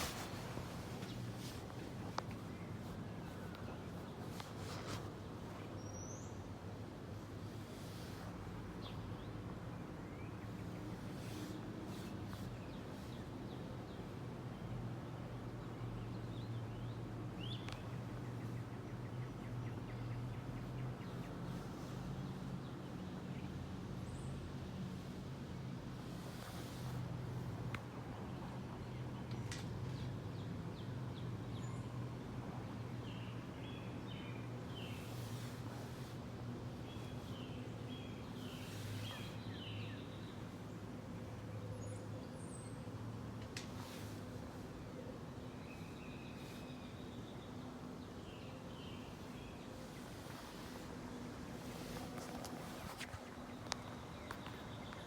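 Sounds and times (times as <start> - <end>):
small birds chirping: 15.4 - 25.2, 25.9 - 55.0.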